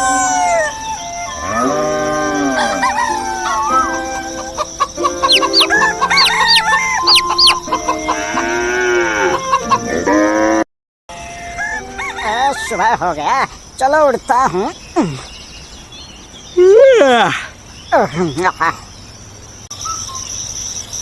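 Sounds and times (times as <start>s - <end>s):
small birds chirping: 0.0s - 8.6s, 12.2s - 21.0s
roosters crowing: 0.0s - 13.2s.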